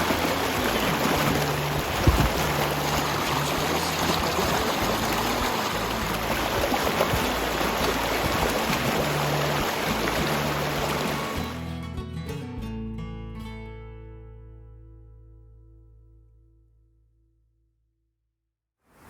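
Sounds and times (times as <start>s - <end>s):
stream rushing: 0.0s - 11.6s
music: 0.0s - 17.7s.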